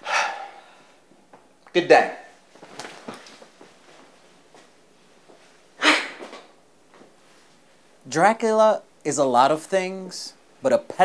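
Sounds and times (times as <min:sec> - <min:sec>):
man's sharp breathy vocal burst: 0:00.0 - 0:00.9, 0:05.8 - 0:06.2.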